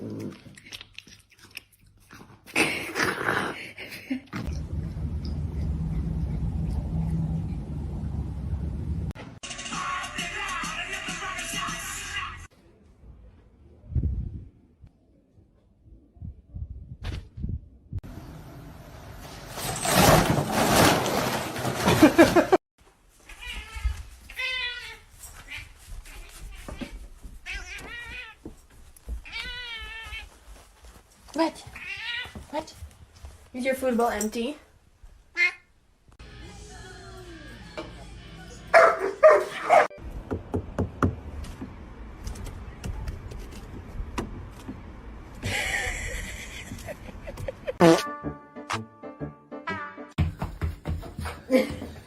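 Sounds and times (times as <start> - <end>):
dog barking: 38.7 - 39.9.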